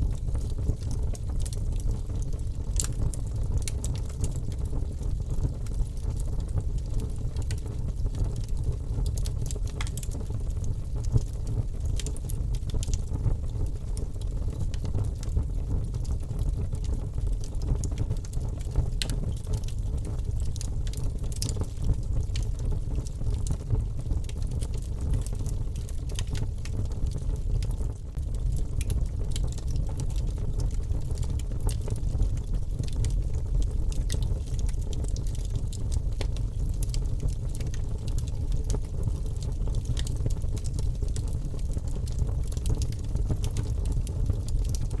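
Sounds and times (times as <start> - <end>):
low rumble of flames: 0.0 - 45.0
wood fire crackling and popping: 0.0 - 45.0.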